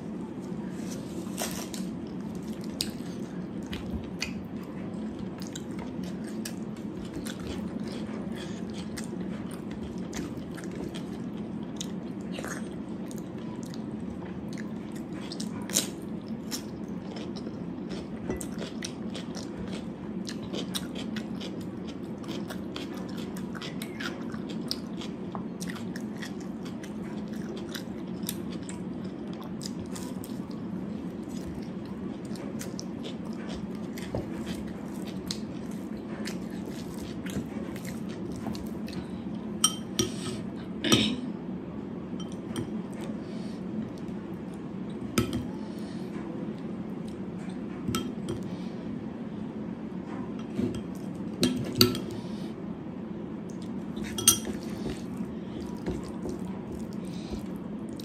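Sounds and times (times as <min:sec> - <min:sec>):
person chewing and crunching: 0:00.8 - 0:13.9, 0:14.5 - 0:39.2, 0:53.5 - 0:58.0.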